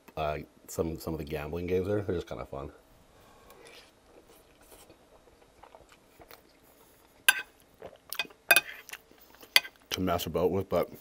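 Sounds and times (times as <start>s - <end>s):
faint chewing: 3.4s - 10.0s.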